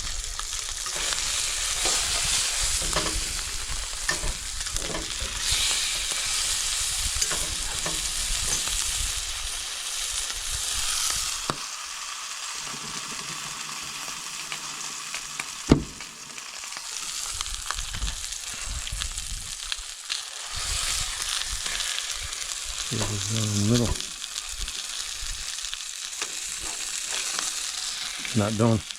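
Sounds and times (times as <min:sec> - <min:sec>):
fish sizzling in a pan: 0:00.0 - 0:28.9
sharp knock: 0:15.7 - 0:16.0.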